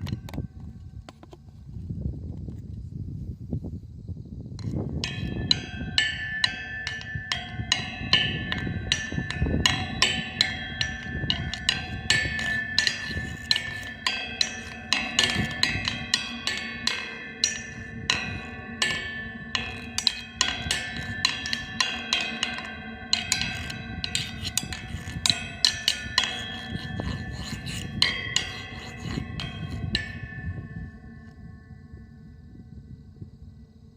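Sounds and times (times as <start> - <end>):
steel tongue drum notes: 5.0 - 31.4.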